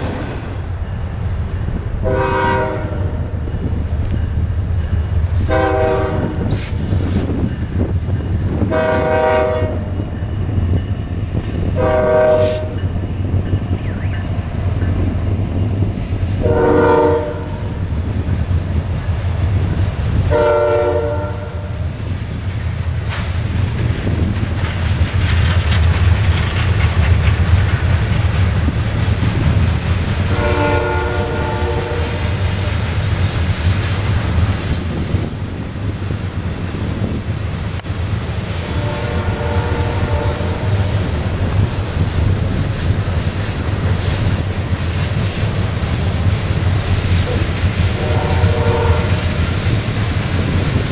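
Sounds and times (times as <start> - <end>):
low engine and train rumble: 0.0 - 50.9
wheel and rail noise: 0.0 - 50.9
locomotive air horn blasts: 2.0 - 3.2, 5.5 - 6.7, 8.7 - 9.9, 11.8 - 12.8, 16.4 - 17.8, 20.3 - 21.8, 30.3 - 32.7, 38.6 - 41.0, 47.9 - 49.3.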